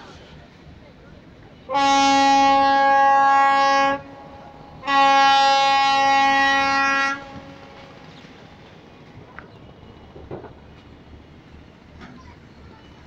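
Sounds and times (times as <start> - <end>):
boat horn blasts: 1.6 - 8.0.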